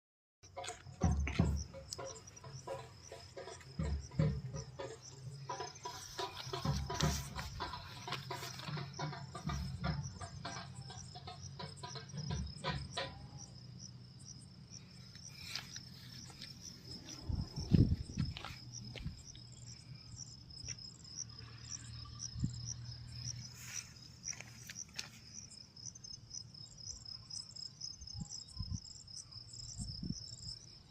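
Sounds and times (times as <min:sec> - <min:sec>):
thumps: 0:00.5 - 0:13.4
insects trilling: 0:00.5 - 0:30.9.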